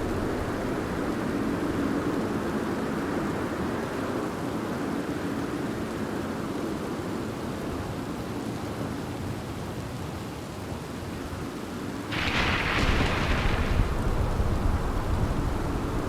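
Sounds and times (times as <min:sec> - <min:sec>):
steady rain: 0:00.0 - 0:16.0
distant thunder rumble: 0:12.1 - 0:16.0.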